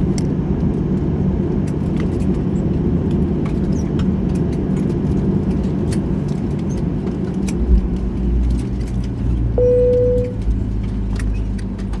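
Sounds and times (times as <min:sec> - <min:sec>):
low cabin rumble: 0:00.0 - 0:12.0
cabin chime: 0:09.6 - 0:10.4.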